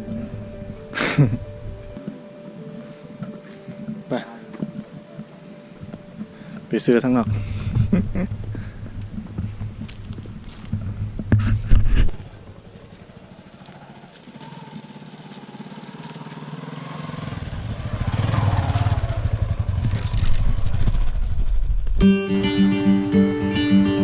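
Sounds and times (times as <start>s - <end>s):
acoustic guitar music: 0.0s - 11.7s, 22.0s - 24.0s
motorcycle engine running: 7.2s - 21.8s.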